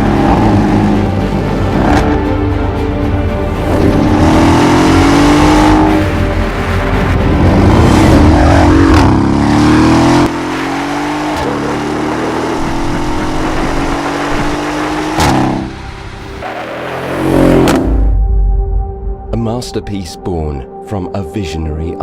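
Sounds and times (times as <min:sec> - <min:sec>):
car engine revving: 0:00.0 - 0:02.2, 0:03.5 - 0:18.2.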